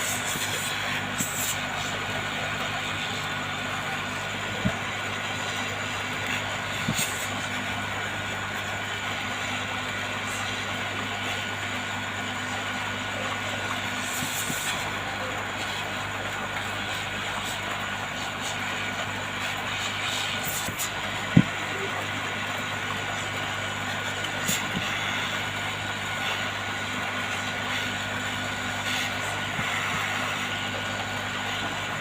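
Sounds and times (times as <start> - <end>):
hot air gun blowing: 0.0 - 1.9, 6.8 - 7.4, 24.3 - 25.1.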